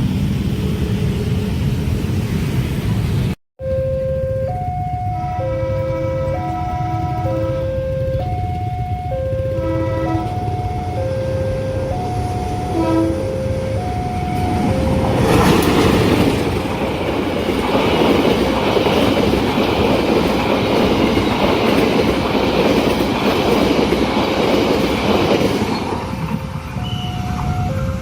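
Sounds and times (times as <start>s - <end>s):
two-tone crossing warning alarm: 3.6s - 28.0s
train wheels clattering over rails: 14.4s - 27.0s.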